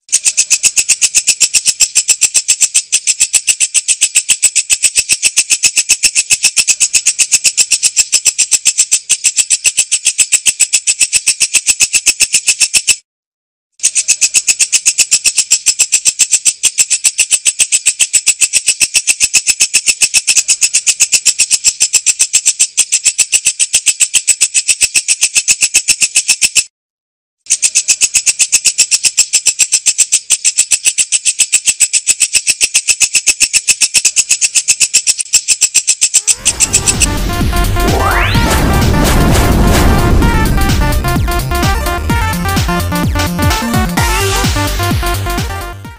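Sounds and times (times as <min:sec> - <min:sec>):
katydid ticking call: 0:00.0 - 0:13.0, 0:13.8 - 0:26.7, 0:27.5 - 0:37.0.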